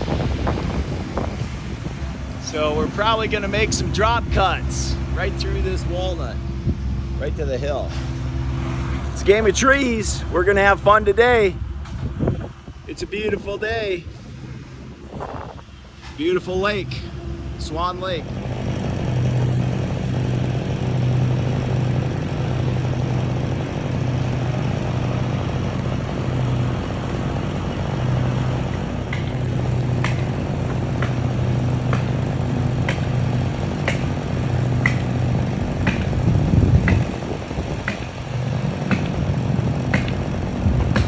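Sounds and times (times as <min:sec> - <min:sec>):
engine running steadily: 0:00.0 - 0:41.0
sharp ticks: 0:33.8 - 0:35.2, 0:35.8 - 0:37.2.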